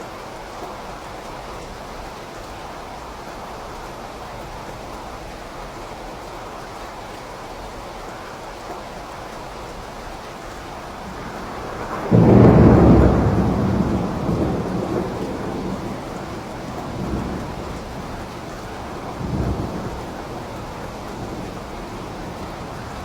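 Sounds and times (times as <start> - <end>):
steady rain: 0.0 - 23.0
thunder clap and rumble: 10.8 - 23.0.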